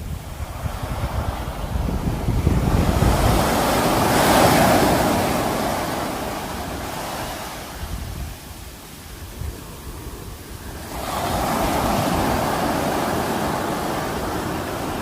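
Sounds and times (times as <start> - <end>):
sea wave breaking: 2.2 - 15.0.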